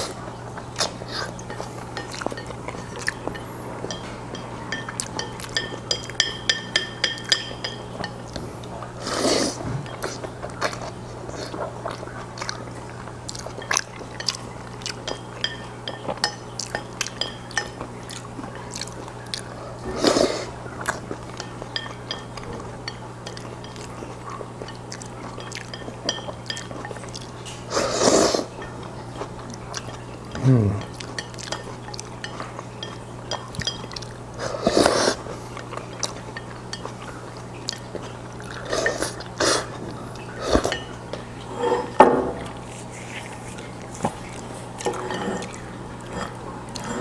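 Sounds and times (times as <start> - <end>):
man chewing wetly: 0.0 - 41.5, 42.4 - 47.0
low electrical hum: 0.0 - 47.0
utensils clinking on bowl: 0.7 - 8.5, 9.4 - 10.9, 11.5 - 47.0
noodle slurps: 9.0 - 9.6, 27.7 - 28.5, 34.4 - 35.4.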